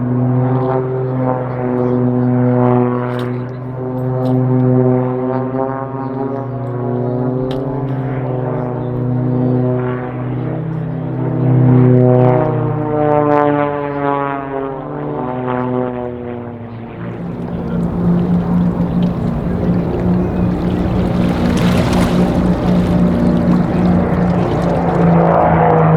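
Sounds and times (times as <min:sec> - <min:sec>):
propeller aircraft flying past: 0:17.2 - 0:25.6.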